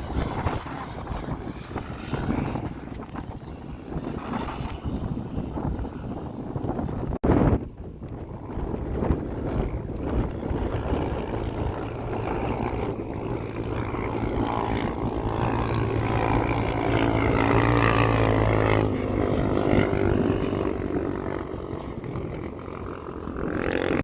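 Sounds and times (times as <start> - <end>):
motorcycle engines droning: 0.0 - 24.0.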